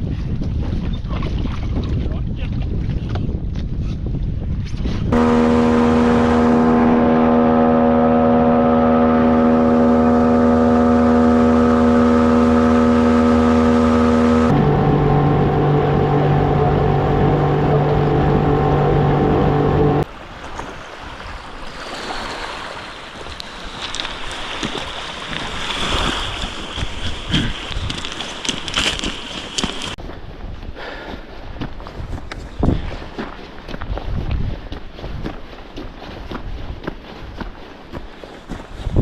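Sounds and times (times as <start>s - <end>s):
wind: 0.0s - 39.0s
rushing water: 5.1s - 30.0s
jet boat motor running: 5.2s - 20.0s.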